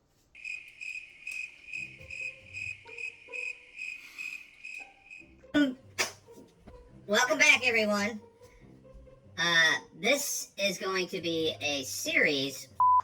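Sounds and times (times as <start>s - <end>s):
cricket chirping: 0.4s - 5.4s.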